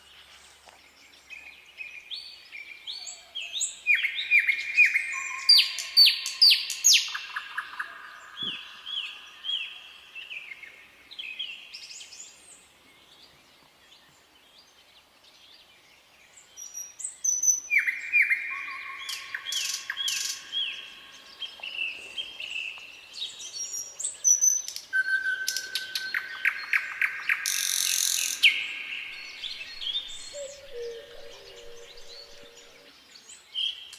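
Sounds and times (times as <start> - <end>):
nightingale singing: 2.5 - 12.2, 16.6 - 33.9.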